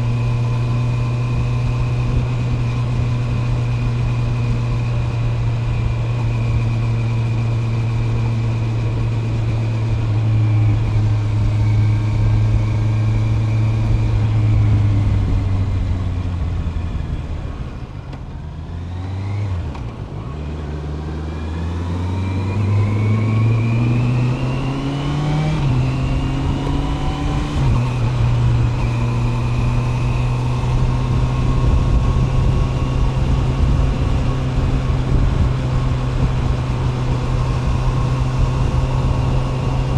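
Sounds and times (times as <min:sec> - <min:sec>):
motorcycle engine: 0:00.0 - 0:39.9
wind noise: 0:23.8 - 0:39.9.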